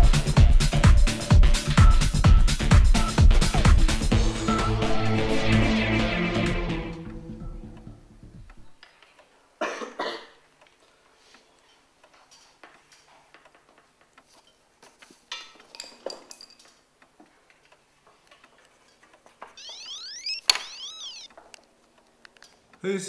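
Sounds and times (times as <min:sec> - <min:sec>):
faint clicks and rustles: 0:10.6 - 0:19.6
mobile phone ringtone: 0:19.6 - 0:21.3.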